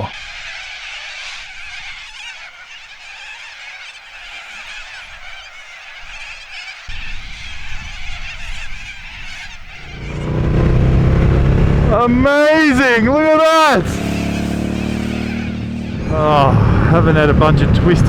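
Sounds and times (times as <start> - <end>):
flock of birds screeching: 0.0 - 18.0
low rumble: 7.3 - 12.2, 15.6 - 18.0.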